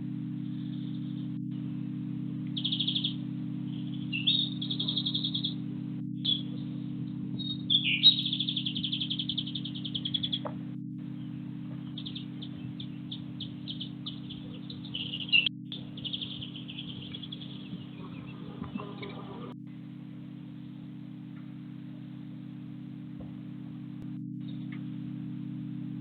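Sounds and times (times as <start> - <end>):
songbird trilling: 2.6 - 5.6, 6.2 - 6.8, 7.4 - 10.6, 11.2 - 19.6.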